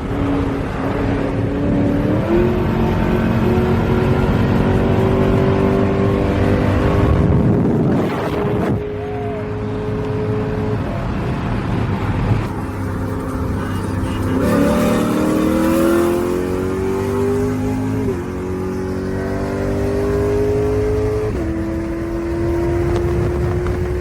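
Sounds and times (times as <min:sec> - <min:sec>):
engine accelerating hard: 0:00.0 - 0:24.0.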